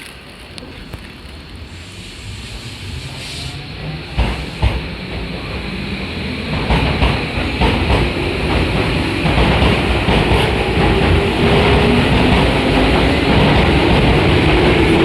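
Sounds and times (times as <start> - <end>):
electric train pulling away: 0.0 - 15.0
train wheels knocking over rail joints: 4.1 - 5.3, 6.4 - 15.0.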